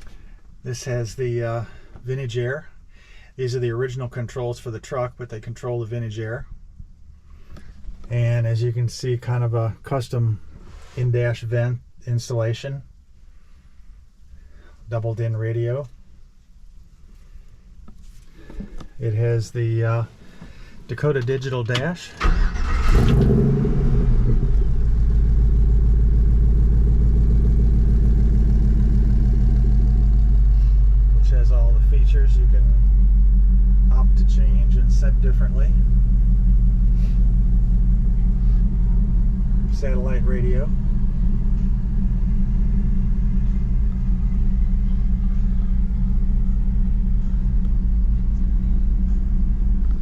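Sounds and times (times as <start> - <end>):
pickup engine idling: 22.2 - 50.0.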